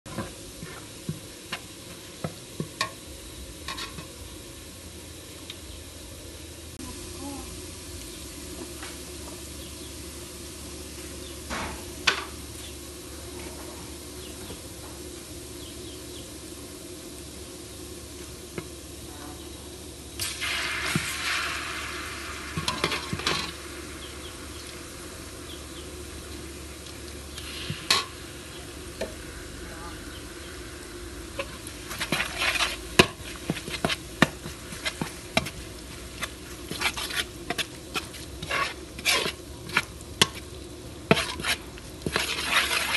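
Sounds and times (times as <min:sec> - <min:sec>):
spatula scraping wok: 0:00.1 - 0:04.4, 0:18.4 - 0:29.2, 0:31.2 - 0:42.9
garlic sizzling in hot oil: 0:00.1 - 0:42.9.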